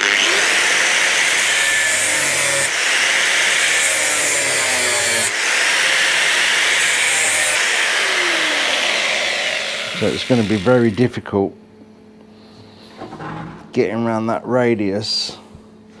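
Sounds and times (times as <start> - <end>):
cutting wheel grinding metal: 0.0 - 11.1.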